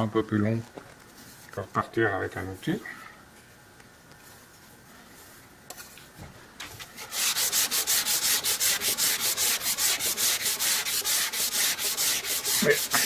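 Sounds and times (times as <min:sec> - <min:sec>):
steel blade scraping on abrasive: 0:07.0 - 0:13.0.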